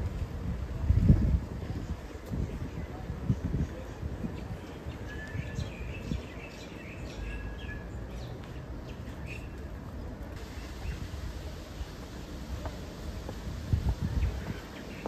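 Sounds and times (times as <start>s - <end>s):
low outdoor rumble: 9.8s - 15.0s
birds chirping: 10.4s - 15.0s.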